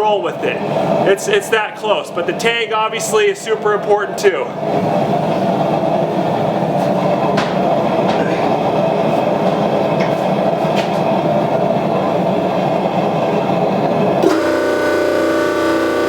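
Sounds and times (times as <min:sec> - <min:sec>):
hydraulic press running: 0:04.5 - 0:16.0.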